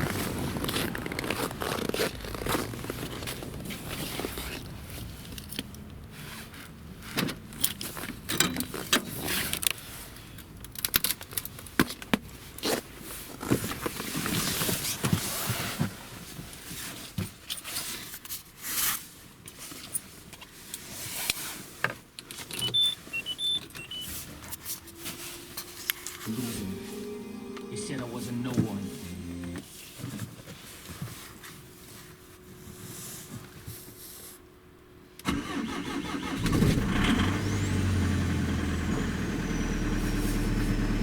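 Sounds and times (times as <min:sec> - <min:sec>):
short high electronic beeps: 0:22.6 - 0:24.1.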